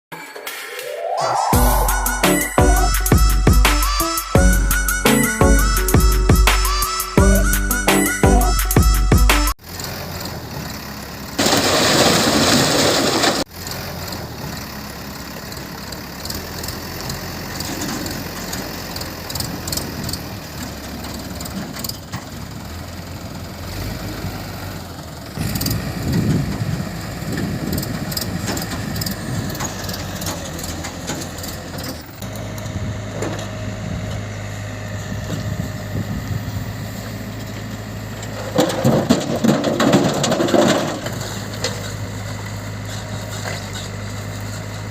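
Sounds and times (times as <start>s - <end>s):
rush of noise: 0.2s - 3.2s
diesel engine running: 1.6s - 44.9s.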